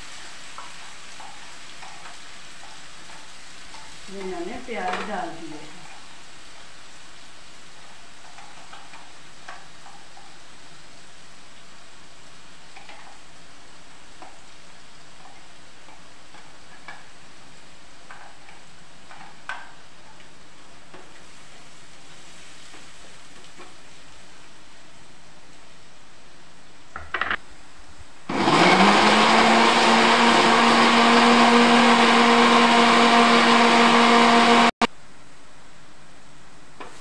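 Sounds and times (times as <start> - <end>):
onion sizzling in hot oil: 0.0 - 28.4.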